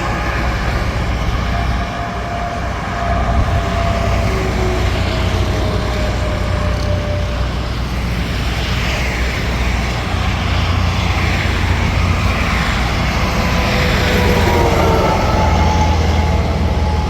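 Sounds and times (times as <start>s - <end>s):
highway traffic rumble: 0.0s - 17.0s
vehicles passing with whine: 0.0s - 17.0s.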